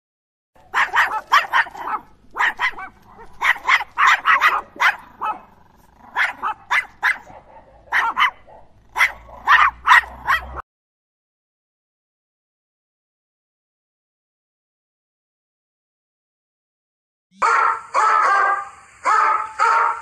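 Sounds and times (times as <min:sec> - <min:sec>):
dog barking: 0:00.6 - 0:10.6, 0:17.4 - 0:20.0.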